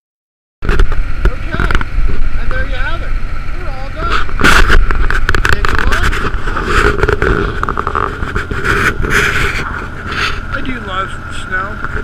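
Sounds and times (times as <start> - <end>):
garden tractor engine running: 0.6 - 12.0
loader knocking and scraping: 0.6 - 12.0.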